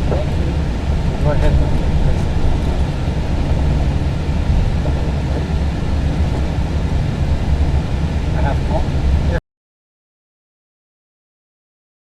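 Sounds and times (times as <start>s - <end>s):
aircraft cockpit rumble while taxiing: 0.0s - 9.4s.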